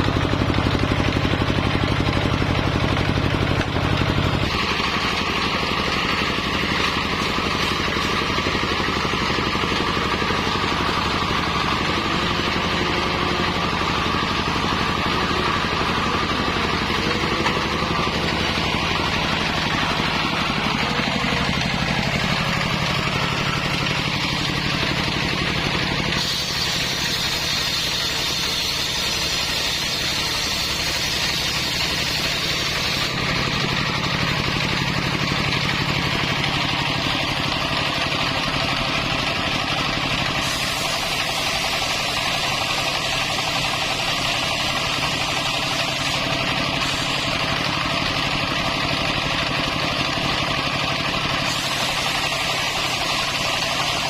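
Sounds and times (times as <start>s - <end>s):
circular saw cutting timber: 0.0s - 54.0s.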